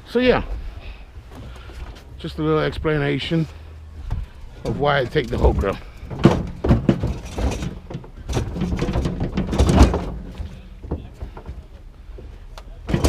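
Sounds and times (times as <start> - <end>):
metal grill thudding and scraping: 4.2 - 11.6.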